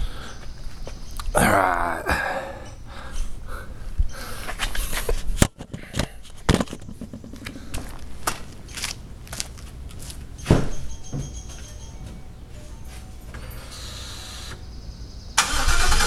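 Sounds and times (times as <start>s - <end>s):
handling clicks and knocks: 4.6s - 12.2s
faint steady high tone: 10.7s - 15.4s.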